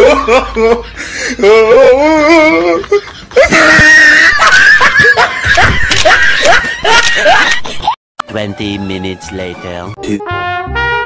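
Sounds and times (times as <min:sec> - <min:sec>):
high-pitched laughter: 0:01.4 - 0:08.0.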